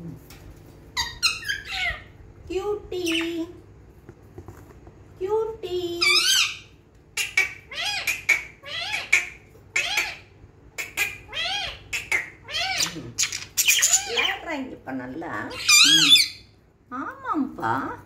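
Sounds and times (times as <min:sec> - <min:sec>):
budgerigars squawking chirps: 0:06.1 - 0:14.4, 0:15.5 - 0:16.4.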